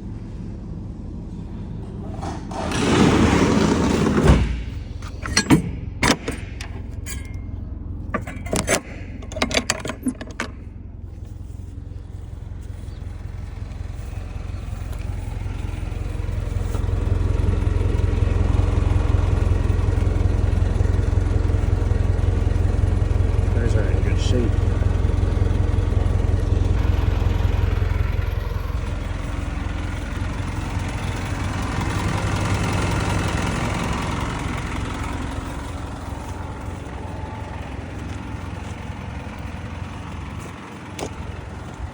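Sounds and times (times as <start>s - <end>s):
truck engine idling: 0.0s - 41.9s
loud rattling scrape: 1.8s - 12.9s
sharp knocks and clanks: 1.9s - 10.8s.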